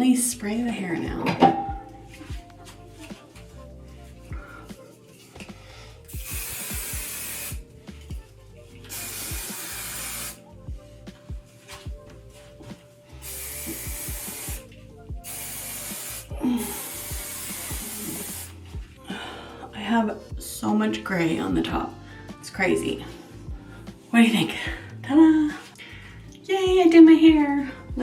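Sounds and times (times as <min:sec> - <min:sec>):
hairspray hissing bursts: 0:06.1 - 0:07.6, 0:08.9 - 0:10.4, 0:13.2 - 0:18.6.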